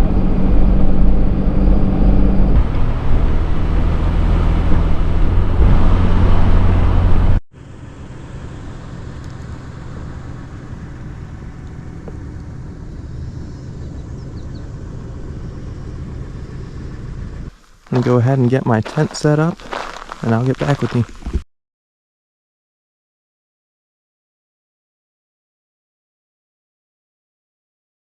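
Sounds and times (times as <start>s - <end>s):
car engine drone: 0.0s - 21.4s
low hum: 0.0s - 21.4s
road noise: 0.0s - 21.4s.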